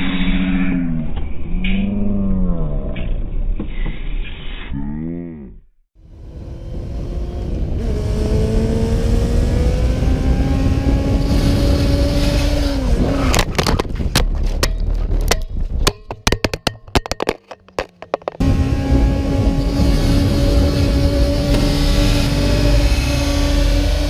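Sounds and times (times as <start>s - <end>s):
vehicle engine accelerating: 6.0s - 13.6s, 17.9s - 24.0s
sharp knocks and scraping clicks: 13.3s - 18.4s.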